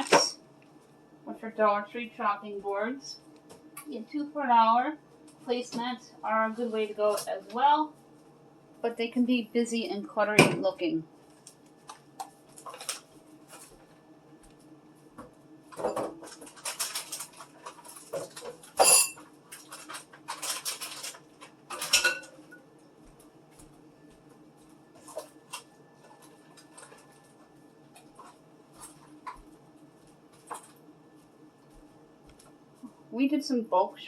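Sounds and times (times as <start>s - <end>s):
jars clinking and clattering: 15.8s - 22.4s.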